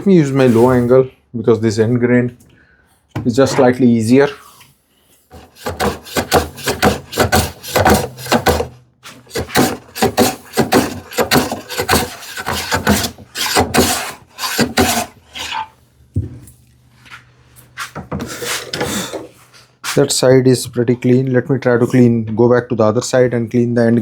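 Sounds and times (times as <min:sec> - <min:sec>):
hand plane scraping end grain: 0:05.3 - 0:15.6.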